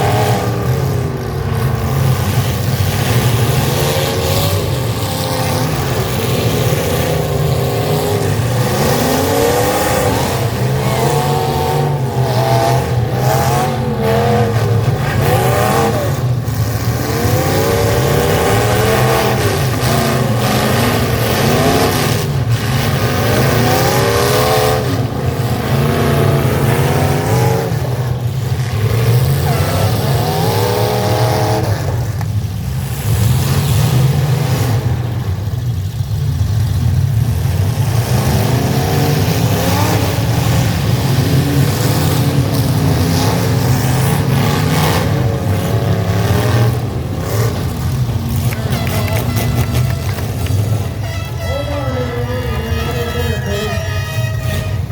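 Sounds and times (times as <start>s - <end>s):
truck engines revving: 0.0s - 54.9s
trucks colliding with bangs: 0.0s - 54.9s.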